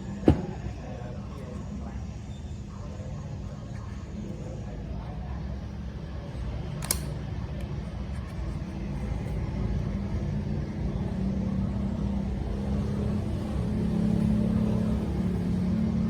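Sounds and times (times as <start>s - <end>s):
low mechanical rumble: 0.0s - 16.0s
sharp click: 6.8s - 7.2s.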